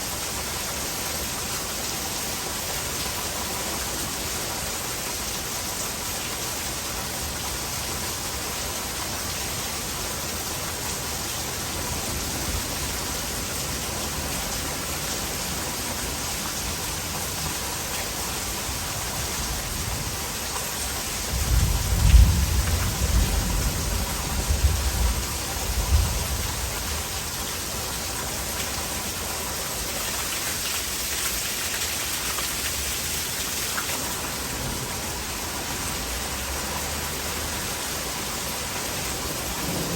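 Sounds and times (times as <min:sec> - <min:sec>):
heavy rain falling: 0:00.0 - 0:39.9
low rumble of thunder: 0:21.2 - 0:27.3, 0:39.2 - 0:39.9.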